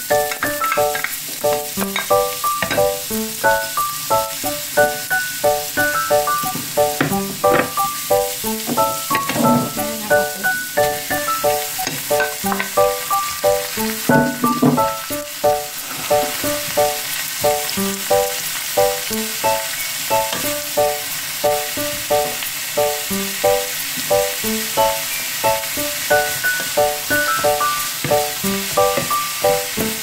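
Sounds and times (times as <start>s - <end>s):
bright rhythmic background music: 0.0s - 30.0s
food sizzling in a frying pan: 0.0s - 30.0s.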